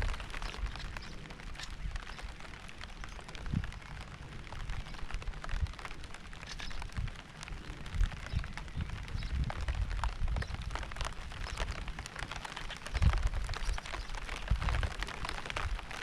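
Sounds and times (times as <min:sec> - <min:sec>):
rain falling: 0:00.0 - 0:16.0
raindrop hits: 0:00.0 - 0:16.0.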